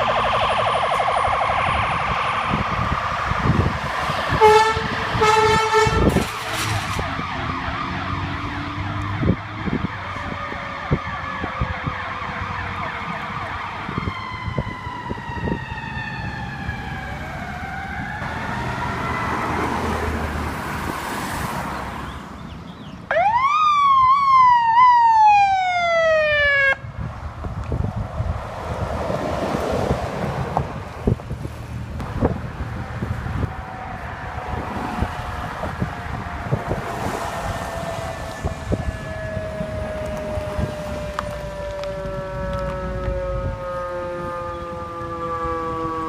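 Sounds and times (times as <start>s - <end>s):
electronic siren rising: 0.0s - 20.2s, 23.1s - 26.8s, 32.8s - 46.0s
siren wailing: 0.0s - 20.4s, 23.1s - 27.0s, 32.2s - 46.0s
air horn blasts: 4.3s - 6.6s.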